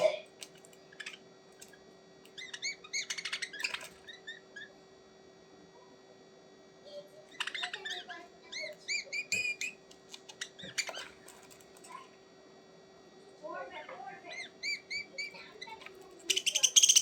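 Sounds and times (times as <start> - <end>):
small birds chirping: 0.4 - 4.8, 7.1 - 11.9, 14.2 - 17.0.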